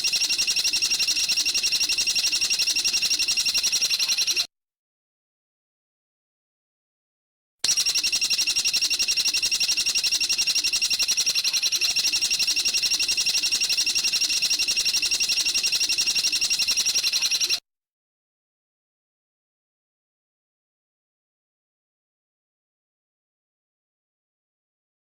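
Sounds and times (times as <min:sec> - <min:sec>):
rapid high-pitched bird trill: 0:00.0 - 0:04.5, 0:07.7 - 0:17.6.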